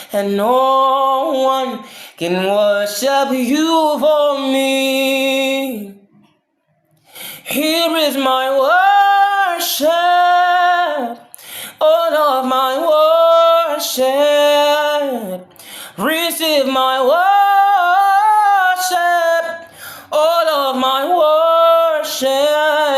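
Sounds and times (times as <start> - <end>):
singer breathing: 1.8 - 2.2, 7.0 - 7.5, 11.2 - 11.8, 15.5 - 16.0, 19.6 - 20.2
person singing unaccompanied: 7.4 - 22.9.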